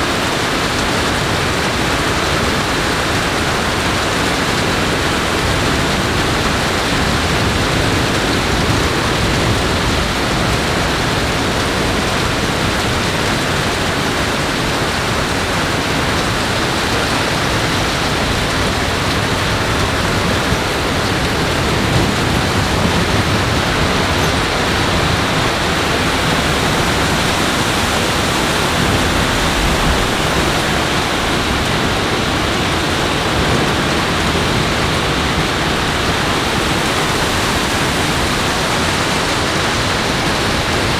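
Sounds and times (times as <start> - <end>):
loud rushing water: 0.0 - 40.9.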